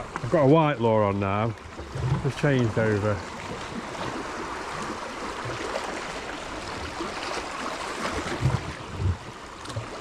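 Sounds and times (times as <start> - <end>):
sea water lapping against rocks: 0.0 - 10.0
dull low thumps: 8.4 - 9.3.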